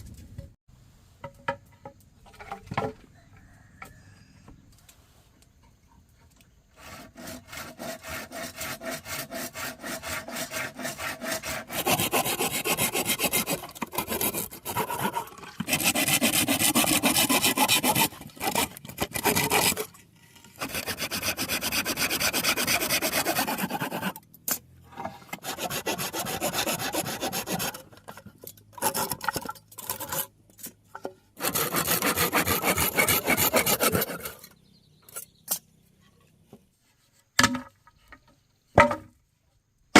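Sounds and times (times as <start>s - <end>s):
saw cutting through wood: 6.7s - 24.6s, 25.3s - 30.3s, 31.4s - 34.5s.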